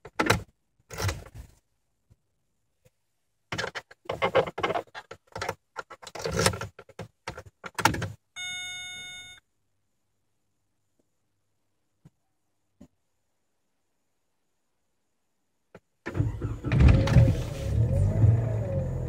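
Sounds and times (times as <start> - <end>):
electronic warning beep: 8.4 - 9.4.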